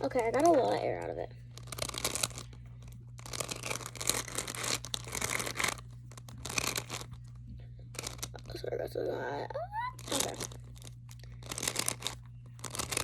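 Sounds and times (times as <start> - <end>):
beads crackling in squeezed toy: 0.0 - 7.2, 7.9 - 8.6, 9.9 - 13.0.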